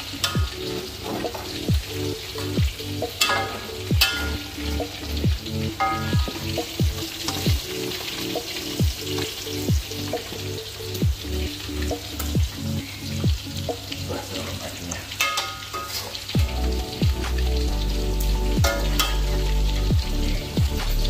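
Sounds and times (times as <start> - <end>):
background music with a beat: 0.0 - 14.1, 15.6 - 21.0
noodles sizzling in a wok: 0.0 - 21.0
metal spatula scraping a wok: 15.1 - 16.3
metal clinks against wok: 15.2 - 16.1.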